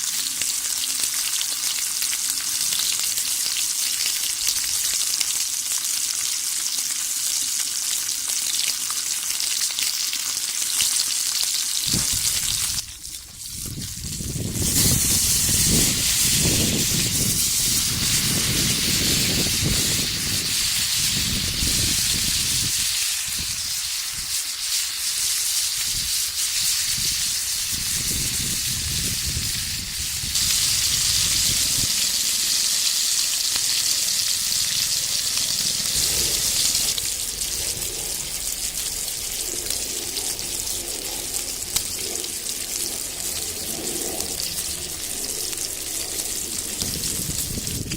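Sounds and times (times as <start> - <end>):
pork sizzling in a skillet: 0.0 - 47.9
low rumble: 34.4 - 47.9.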